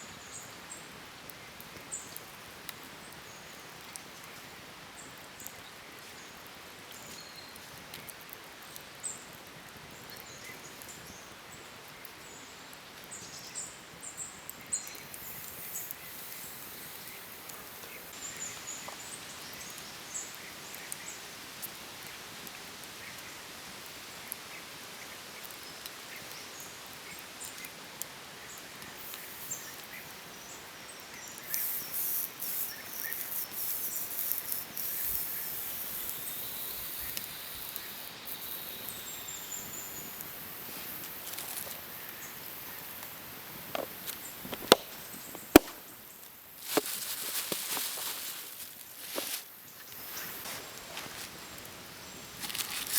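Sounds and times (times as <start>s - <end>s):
steady background hiss: 10.0s - 52.9s
dense crackling clicks: 39.6s - 50.4s.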